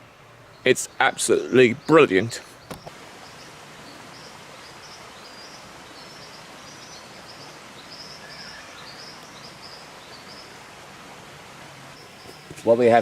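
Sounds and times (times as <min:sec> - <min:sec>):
steady hiss of bush: 0:00.0 - 0:13.0
faint high bird chirps: 0:00.5 - 0:10.6.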